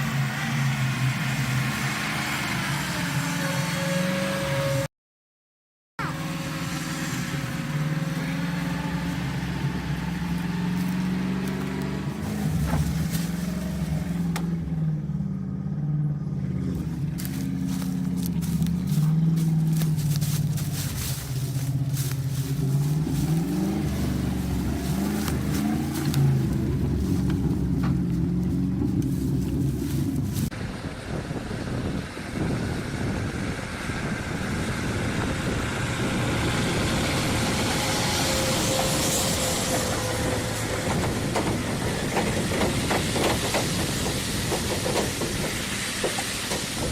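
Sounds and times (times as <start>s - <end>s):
vehicle engine revving: 0.0s - 4.9s, 6.0s - 46.9s.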